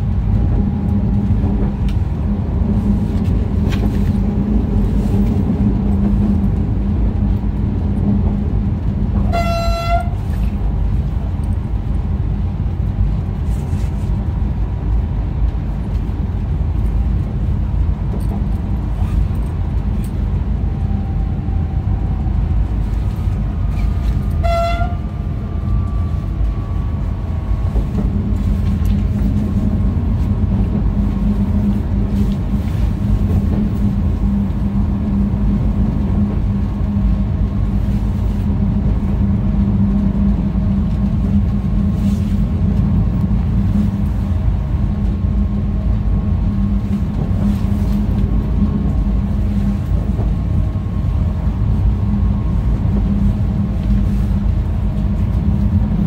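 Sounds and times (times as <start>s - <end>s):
train wheels rumbling: 0.0s - 56.0s
train horn toot: 9.2s - 10.5s, 23.7s - 26.9s.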